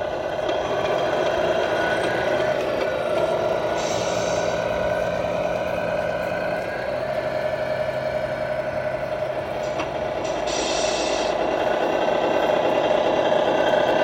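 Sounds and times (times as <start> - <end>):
engine running: 0.0 - 14.0
high hiss: 3.8 - 4.6, 9.6 - 11.4.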